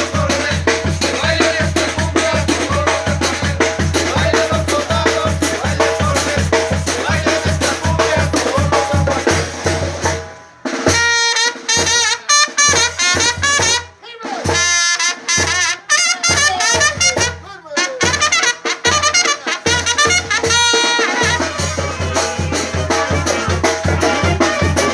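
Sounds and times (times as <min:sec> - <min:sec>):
tuba bass and drums beat: 0:00.0 - 0:24.9
trumpets playing bending phrases: 0:10.9 - 0:24.9.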